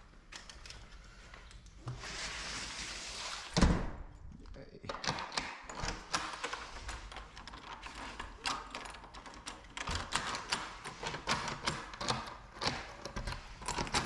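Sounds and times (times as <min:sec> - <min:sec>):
door lock hardware clicks and taps: 0:04.9 - 0:06.6, 0:07.2 - 0:14.0.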